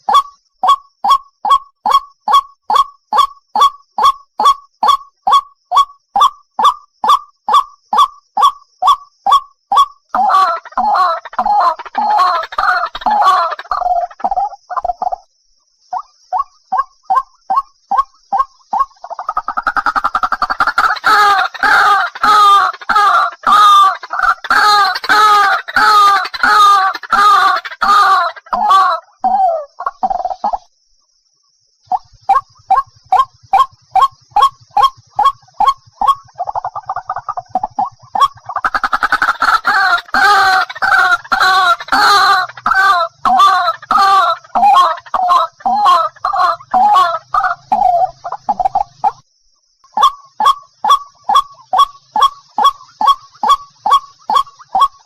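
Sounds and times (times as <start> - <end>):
waterhen calling: 0.0 - 15.1, 15.9 - 30.7, 31.9 - 49.2, 50.0 - 55.0.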